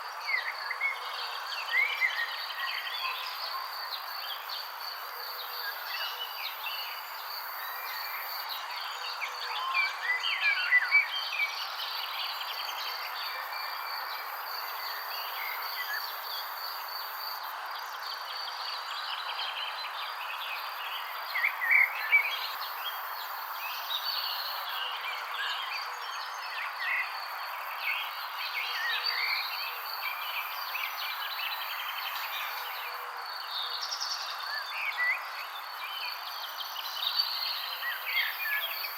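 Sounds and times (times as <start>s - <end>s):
high-pitched insect chorus: 11.6s - 18.0s, 26.6s - 33.0s.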